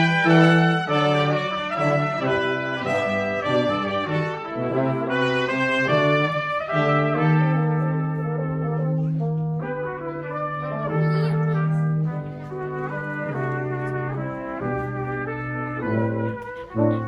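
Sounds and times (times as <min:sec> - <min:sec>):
brass quartet playing: 0:00.0 - 0:17.0.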